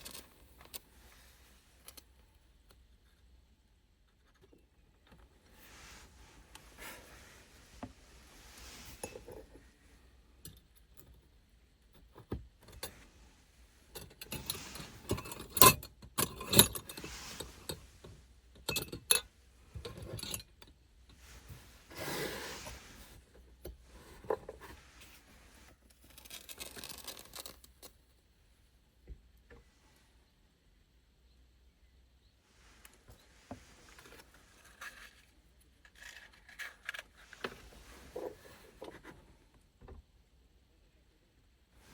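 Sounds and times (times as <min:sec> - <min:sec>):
rustling and scraping: 0:04.1 - 0:10.2, 0:12.0 - 0:28.0, 0:32.5 - 0:39.5
small objects clinking and knocking: 0:26.0 - 0:27.9.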